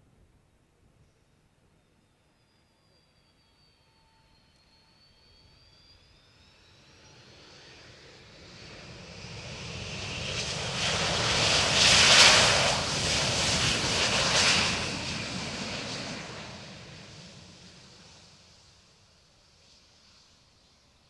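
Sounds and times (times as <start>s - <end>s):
jet flying past: 5.4s - 20.4s.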